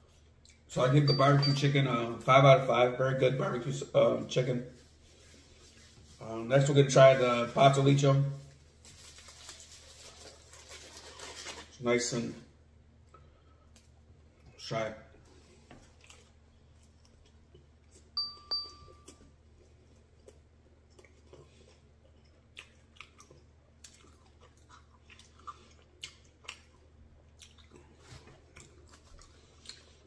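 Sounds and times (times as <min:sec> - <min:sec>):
faint chewing: 0:15.2 - 0:18.2, 0:18.9 - 0:30.0.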